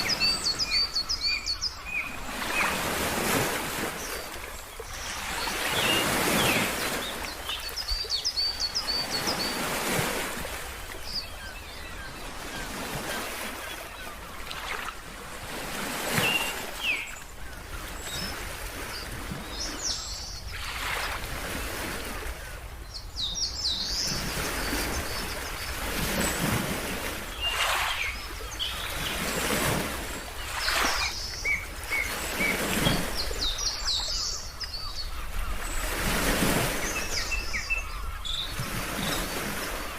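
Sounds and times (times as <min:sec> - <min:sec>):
ocean waves washing in: 0:00.0 - 0:08.2, 0:23.8 - 0:34.3
birds chirping: 0:00.0 - 0:14.9, 0:22.0 - 0:39.9.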